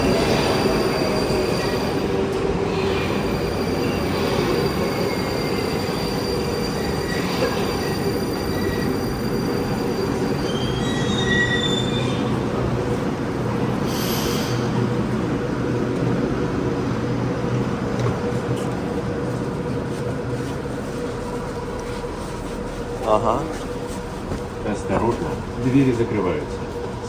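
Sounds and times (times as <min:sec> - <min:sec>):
train wheels rumbling on rails: 0:00.0 - 0:27.0
high wheel squeals: 0:02.9 - 0:12.4.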